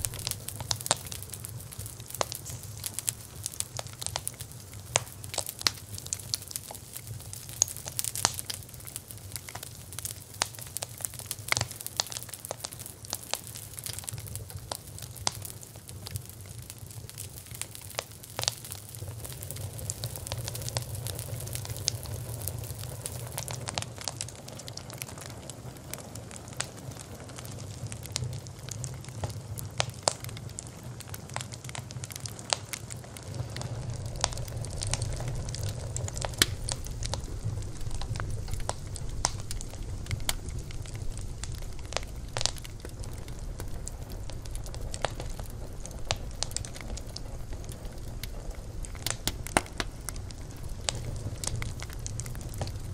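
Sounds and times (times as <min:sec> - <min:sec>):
fire crackles and pops: 0:00.0 - 0:52.9
wood fire burning: 0:00.0 - 0:52.9.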